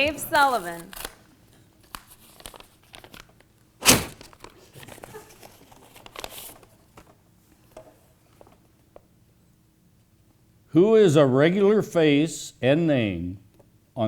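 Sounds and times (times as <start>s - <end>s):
paper envelope crinkling: 0.0s - 7.2s
envelope tearing: 0.7s - 1.2s, 1.8s - 6.6s.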